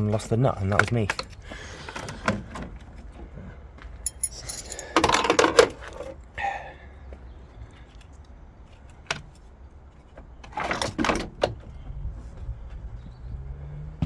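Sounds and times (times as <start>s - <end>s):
metallic clinking of tools and parts: 4.0s - 6.2s.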